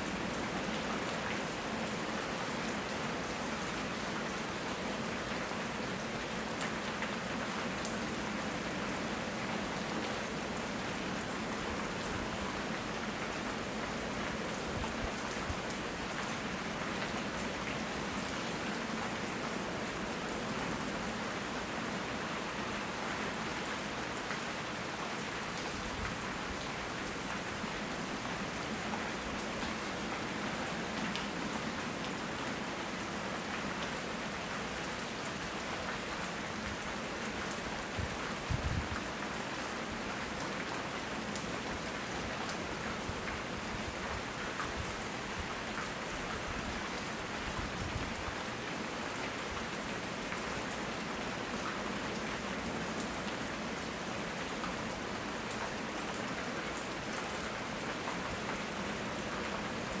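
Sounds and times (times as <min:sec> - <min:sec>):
steady rain hiss: 0:00.0 - 1:00.0.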